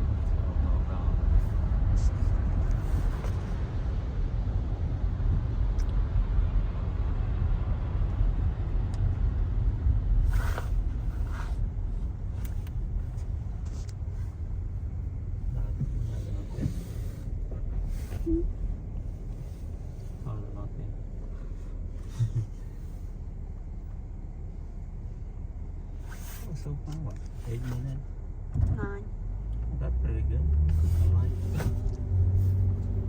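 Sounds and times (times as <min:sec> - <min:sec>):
car driving rumble from inside: 0:00.0 - 0:33.0
brief hisses: 0:10.3 - 0:11.6.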